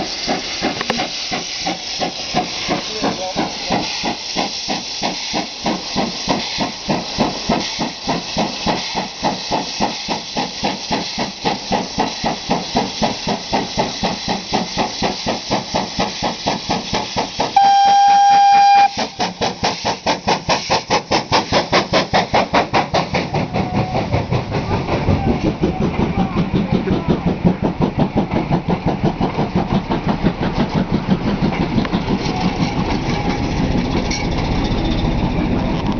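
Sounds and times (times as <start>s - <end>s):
passing train rumble and clatter: 0.0s - 35.9s
steam locomotive exhaust beating: 0.0s - 35.9s
steam whistle: 17.6s - 19.2s.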